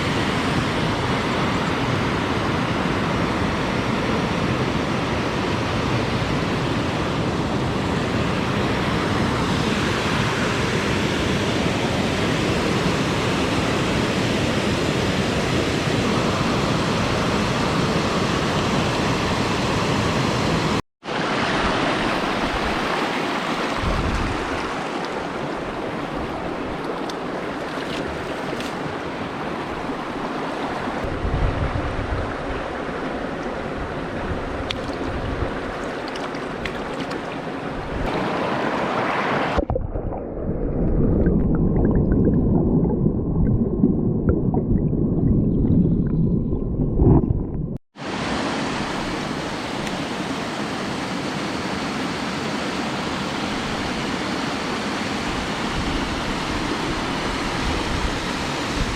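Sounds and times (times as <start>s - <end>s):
stream rushing over rocks: 15.4s - 31.1s, 32.2s - 39.6s, 48.0s - 58.9s.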